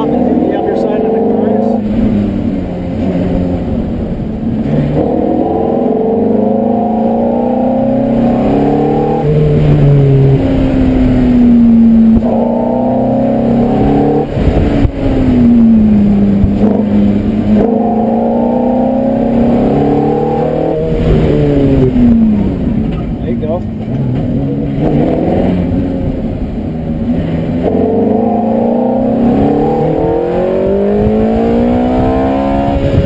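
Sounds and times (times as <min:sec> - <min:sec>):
car engine revving hard: 0:00.0 - 0:33.0.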